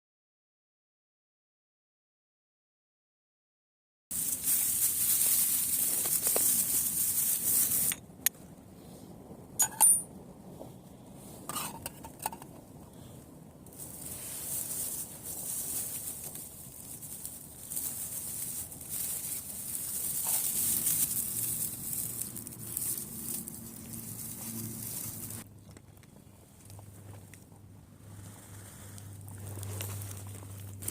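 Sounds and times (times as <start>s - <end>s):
steel striker hitting flint: 9.6s - 10.0s.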